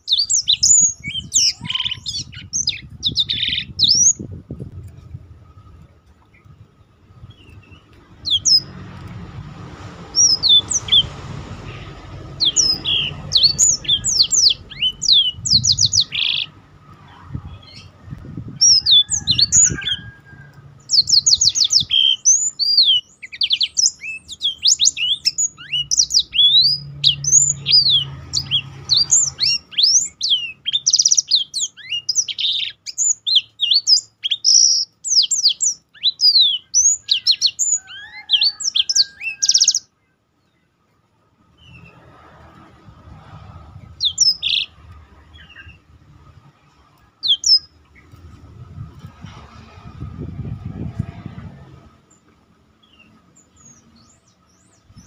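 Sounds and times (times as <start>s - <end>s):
canaries singing: 0.0s - 55.0s
low rumbling noise: 0.9s - 21.9s, 41.2s - 55.0s.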